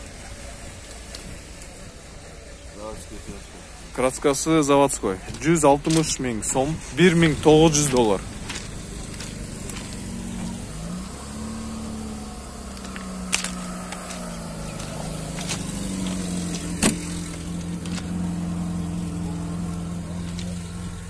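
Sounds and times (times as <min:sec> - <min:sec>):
car engine idling: 0:00.0 - 0:21.0
car door unlatching click: 0:16.5 - 0:18.1.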